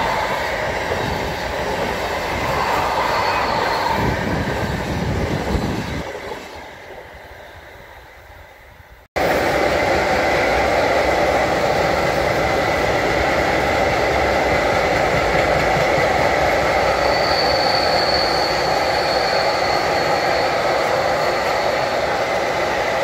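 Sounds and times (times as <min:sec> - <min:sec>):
freight train wheels rattling on rails: 0:00.0 - 0:23.0
high wheel squeal: 0:02.2 - 0:06.1, 0:16.8 - 0:22.2.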